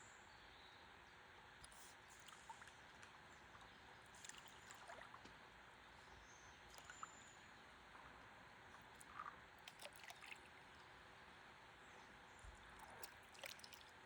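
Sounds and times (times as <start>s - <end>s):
faint river water flowing: 1.1s - 14.0s
water drips and clicks: 6.7s - 7.1s, 9.0s - 10.4s, 12.8s - 13.9s.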